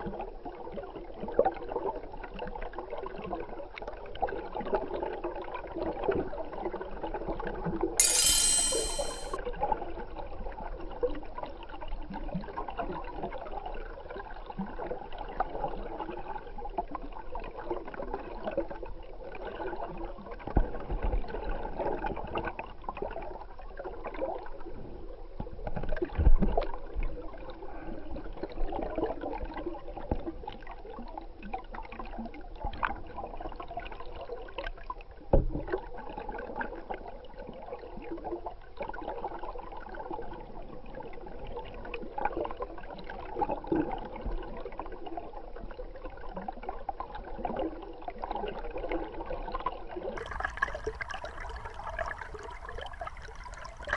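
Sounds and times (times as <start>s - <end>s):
stream water underwater: 50.2s - 53.9s.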